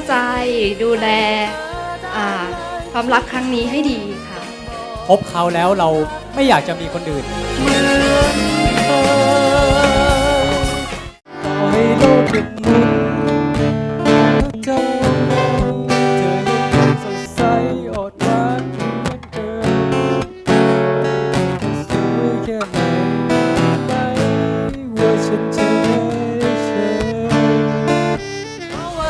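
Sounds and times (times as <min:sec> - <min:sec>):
acoustic guitar: 0:00.0 - 0:29.0
pop love song instrumental: 0:00.0 - 0:29.0.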